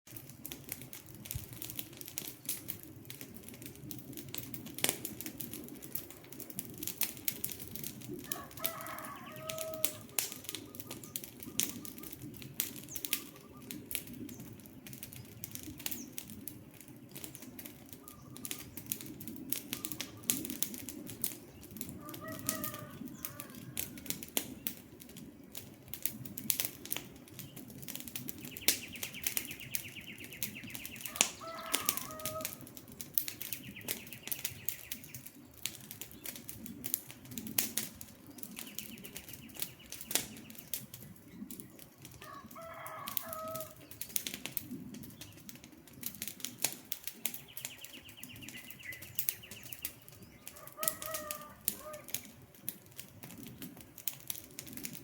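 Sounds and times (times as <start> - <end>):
campfire crackling and popping: 0.1 - 55.0
bird calling: 8.3 - 13.9, 18.0 - 18.9, 28.4 - 32.7, 47.4 - 52.4.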